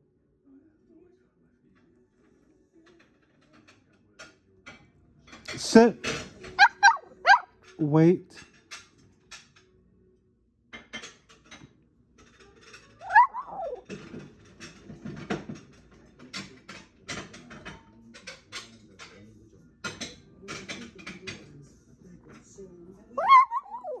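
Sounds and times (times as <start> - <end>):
dog whining: 6.6 - 7.5, 13.0 - 13.8, 23.2 - 24.0.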